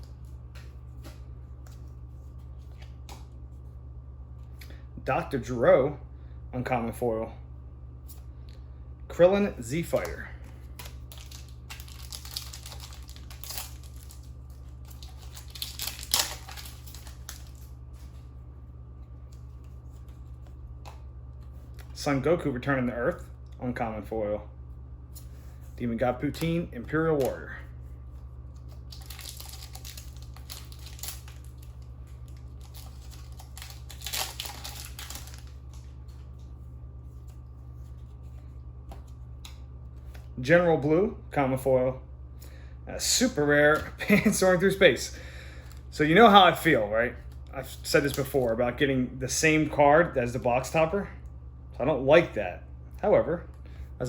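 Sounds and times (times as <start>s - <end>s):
cards rustling and crinkling: 0.0s - 3.8s, 9.6s - 22.0s, 25.2s - 40.3s, 47.2s - 48.6s
steady low hum: 0.0s - 54.0s
foil wrapper crinkling and tearing: 10.0s - 17.8s, 28.5s - 36.2s.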